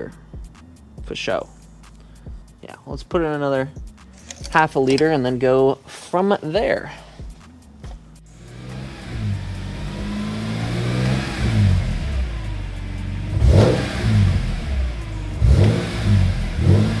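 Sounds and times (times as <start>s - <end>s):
car engine revving: 7.2s - 17.0s.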